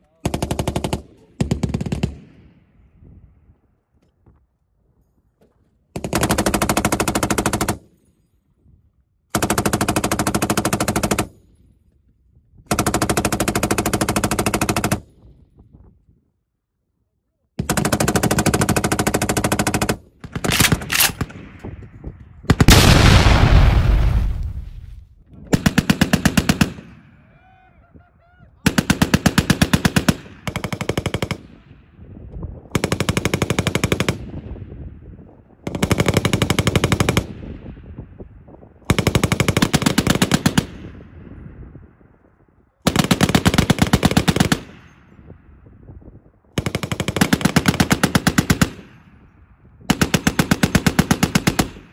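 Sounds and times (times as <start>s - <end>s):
machine gun bursts: 19.4s - 21.2s
deep rumbling blast: 21.3s - 25.2s.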